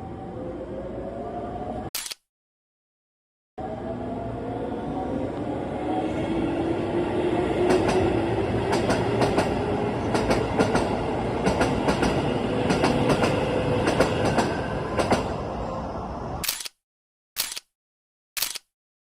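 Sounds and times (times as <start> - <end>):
electric train whine: 3.6 - 16.4
train rumble: 3.6 - 16.4.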